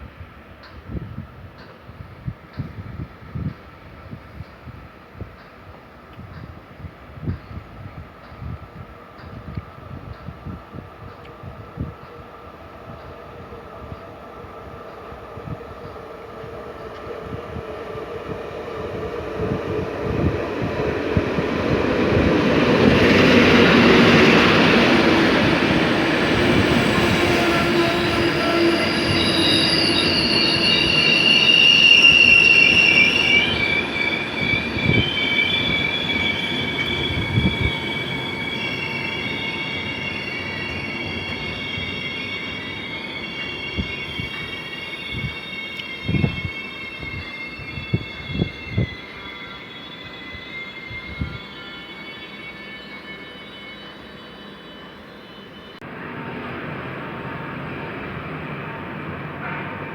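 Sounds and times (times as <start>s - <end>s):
train rumbling past: 0.0s - 59.9s
train wheels squealing: 0.6s - 56.4s.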